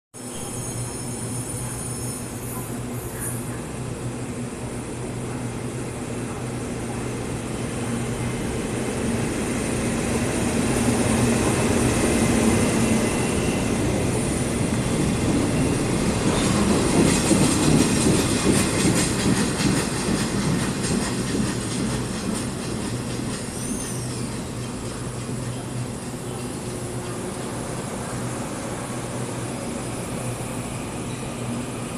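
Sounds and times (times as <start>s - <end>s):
high wheel squeal: 0.3s - 3.3s, 23.4s - 24.6s
train wheels clattering on rails: 9.9s - 28.2s.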